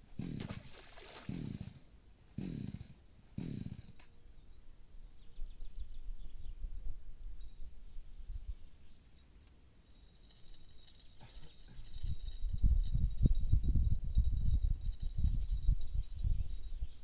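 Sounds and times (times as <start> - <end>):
high-pitched insect trill: 7.4 - 17.0.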